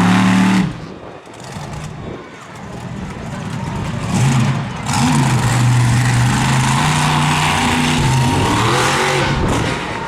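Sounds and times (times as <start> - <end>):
monster truck engine revving: 0.0 - 2.0, 3.9 - 10.0
loud rushing noise: 4.2 - 10.0.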